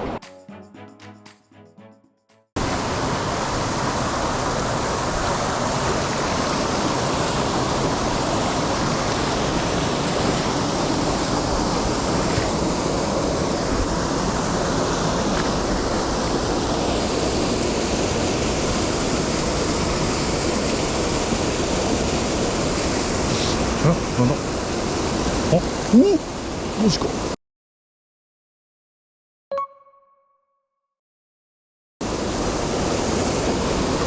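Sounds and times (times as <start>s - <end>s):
stream rushing: 2.6s - 23.9s, 32.0s - 34.0s.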